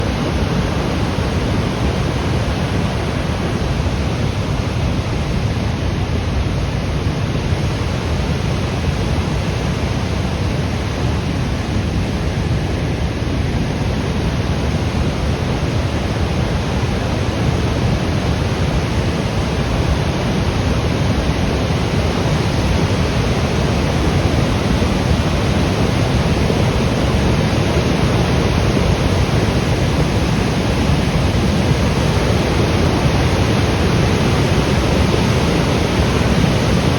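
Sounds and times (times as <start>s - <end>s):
flood water rushing: 13.7s - 36.9s.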